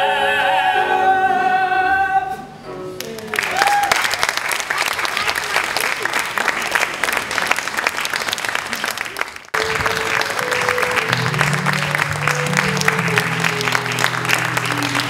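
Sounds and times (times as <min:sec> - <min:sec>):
audience applauding: 0:03.0 - 0:15.0
held musical notes: 0:09.6 - 0:15.0.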